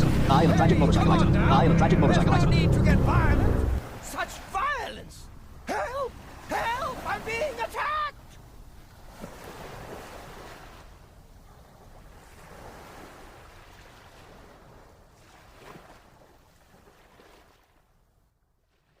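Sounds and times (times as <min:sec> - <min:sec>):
faint rushing noise: 0:00.0 - 0:05.6.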